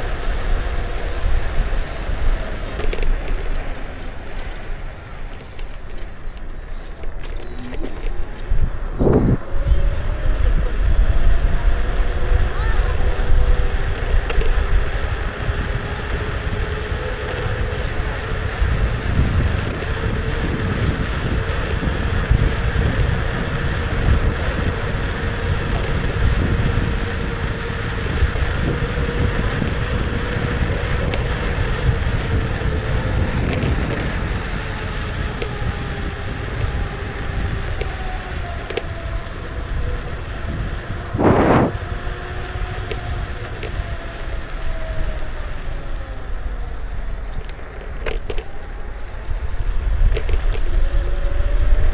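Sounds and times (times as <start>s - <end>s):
road noise rumbling: 0.0s - 51.9s
wind buffeting microphone: 0.0s - 51.9s
electric motor whine: 35.1s - 47.4s.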